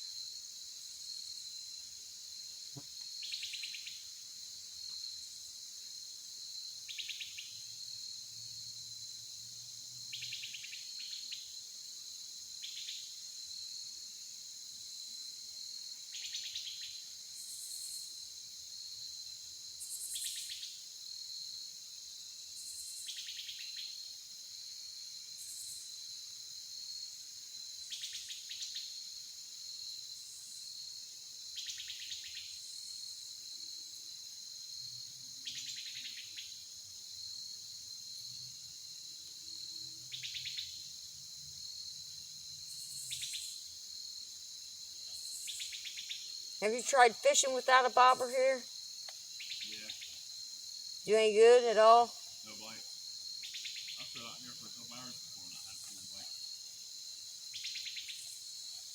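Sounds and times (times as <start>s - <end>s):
insects buzzing: 0.0s - 58.9s
trilled insect calls: 15.8s - 18.2s, 19.1s - 20.9s, 22.5s - 24.2s, 27.7s - 29.2s, 31.5s - 33.3s, 34.4s - 58.9s.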